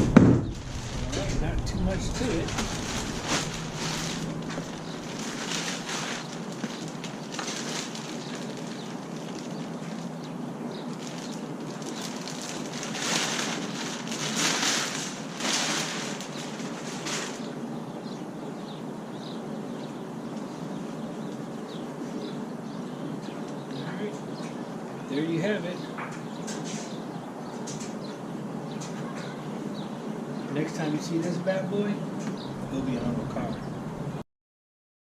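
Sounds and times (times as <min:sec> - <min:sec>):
rain falling: 0:00.0 - 0:10.0
packaging rustling: 0:00.5 - 0:17.6.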